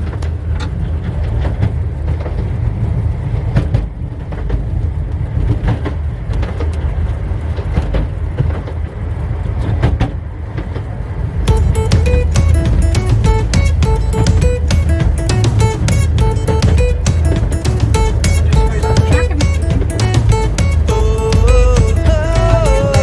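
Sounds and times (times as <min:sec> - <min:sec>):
wheels clicking over rail joints: 0:00.0 - 0:02.4.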